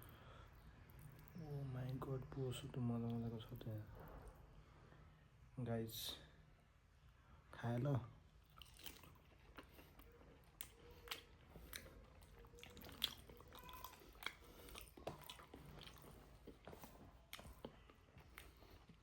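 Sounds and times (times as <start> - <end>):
person chewing food: 8.3 - 19.0.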